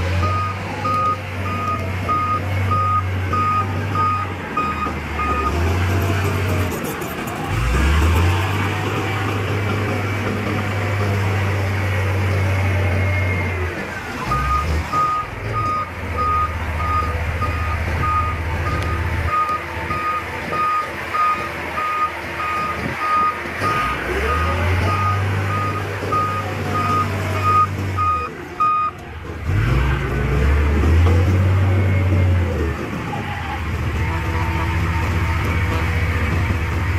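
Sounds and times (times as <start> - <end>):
heavy diesel machinery running: 0.0 - 36.9
reversing alarm beeping: 0.2 - 5.6, 14.3 - 29.0.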